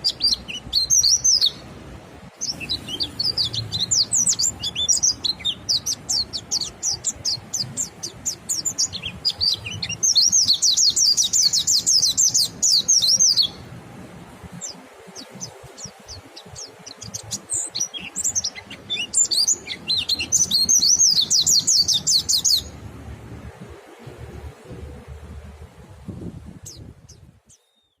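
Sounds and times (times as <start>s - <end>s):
bird chattering song: 0.0s - 1.6s, 2.4s - 13.6s, 14.6s - 22.8s.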